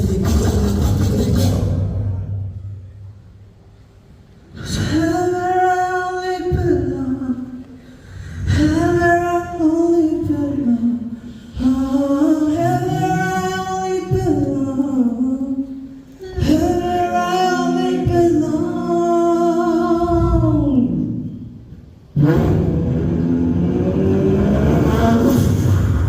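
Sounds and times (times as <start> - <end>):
beatbox bass line: 0.0 - 2.0.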